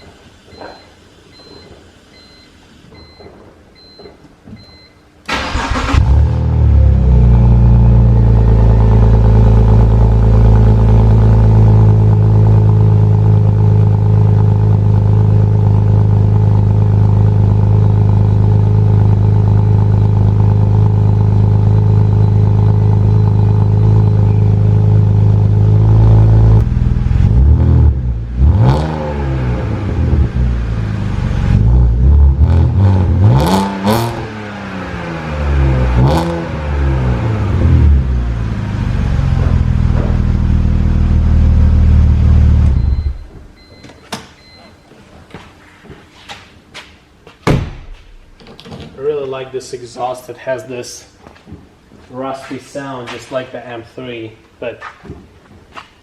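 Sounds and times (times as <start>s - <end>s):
faint electronic beeping: 0.0s - 5.0s
car engine idling and revving: 5.3s - 43.6s.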